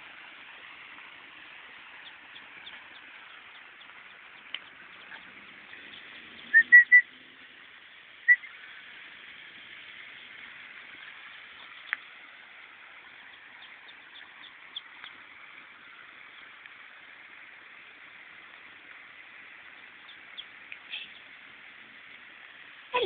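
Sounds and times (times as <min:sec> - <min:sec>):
outdoor hiss: 0:00.0 - 0:23.0
ducklings peeping: 0:01.9 - 0:07.0, 0:13.0 - 0:15.3, 0:19.7 - 0:21.4
sharp tick: 0:04.4 - 0:04.8.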